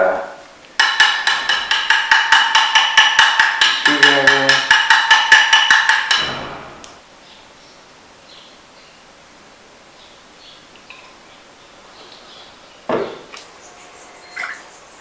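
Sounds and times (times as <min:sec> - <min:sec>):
screwdriver tapping on metal: 0:00.8 - 0:06.3.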